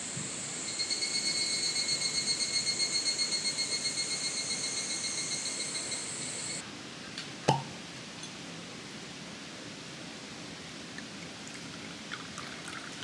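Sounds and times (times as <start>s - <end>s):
pulsing high-pitched insect call: 0.0s - 6.6s
steady background hiss: 0.0s - 13.0s.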